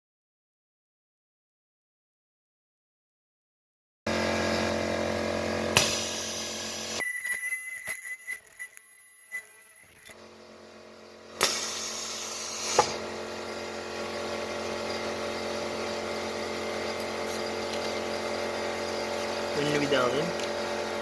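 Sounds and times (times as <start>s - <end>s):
welding machine humming: 7.0s - 10.2s.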